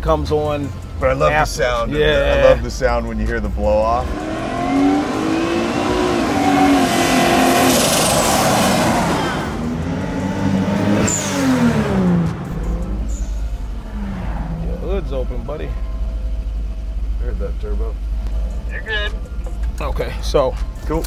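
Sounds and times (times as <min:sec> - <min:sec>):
car engine accelerating past: 0:01.0 - 0:17.4.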